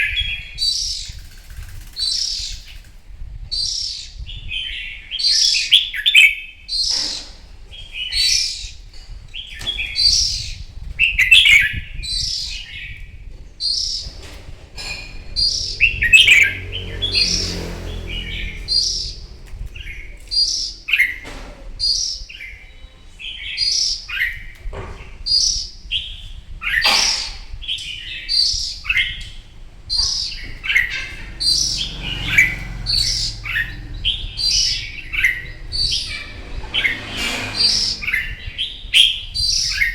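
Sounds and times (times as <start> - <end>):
bird singing warbling phrases: 14.8 - 21.2, 25.3 - 37.1.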